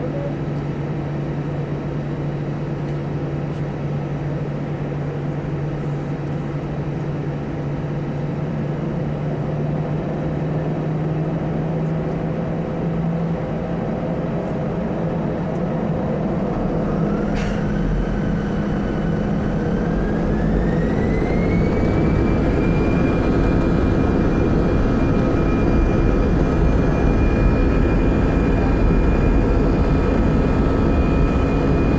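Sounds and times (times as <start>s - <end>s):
jet engines humming: 0.0s - 31.9s.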